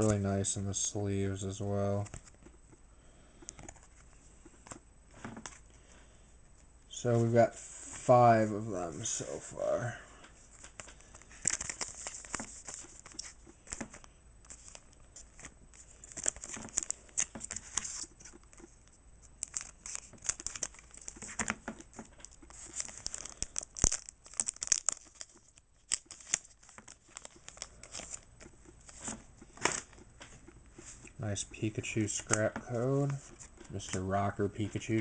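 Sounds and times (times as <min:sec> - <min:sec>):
foil wrapper tearing and crinkling: 0:10.7 - 0:13.3, 0:16.0 - 0:18.1, 0:19.4 - 0:28.3.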